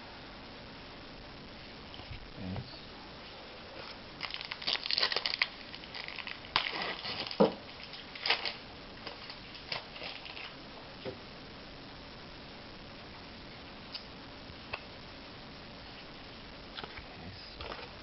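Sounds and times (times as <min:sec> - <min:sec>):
wrapper tearing and crinkling: 0:03.8 - 0:10.6.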